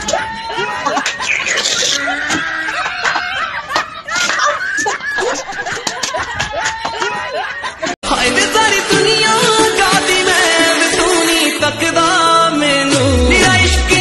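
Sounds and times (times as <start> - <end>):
people laughing and snickering: 0.0 - 8.0
music: 8.0 - 14.0.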